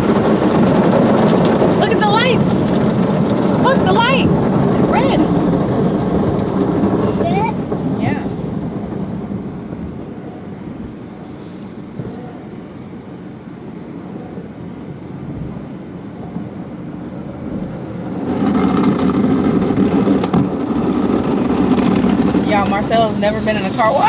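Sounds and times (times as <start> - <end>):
car wash machinery running: 21.4 - 24.0.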